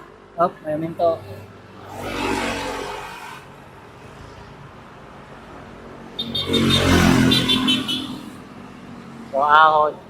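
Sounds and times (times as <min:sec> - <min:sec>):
traffic noise: 0:00.0 - 0:10.0
vehicle passing close by: 0:01.6 - 0:04.6, 0:06.0 - 0:08.9
loud vehicle approaching: 0:06.2 - 0:08.5.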